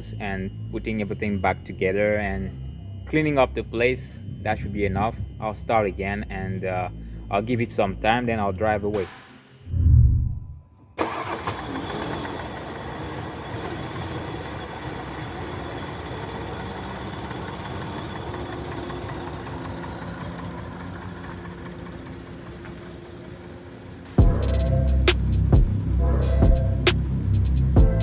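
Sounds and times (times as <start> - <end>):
car engine idling: 11.0 - 28.0.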